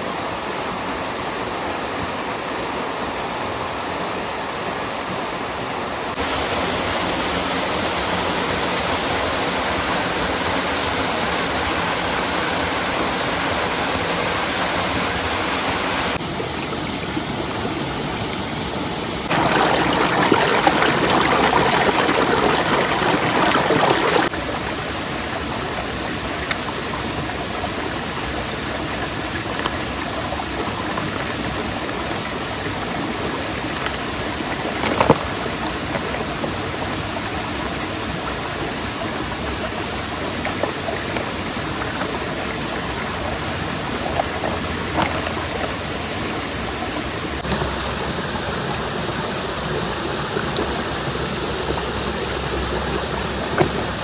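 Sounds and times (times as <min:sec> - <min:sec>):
mountain stream rushing: 0:00.0 - 0:54.0.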